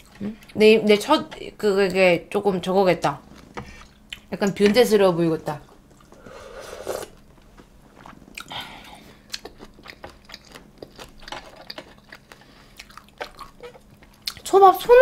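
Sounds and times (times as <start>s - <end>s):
person chewing food: 3.4s - 4.3s, 5.8s - 14.5s.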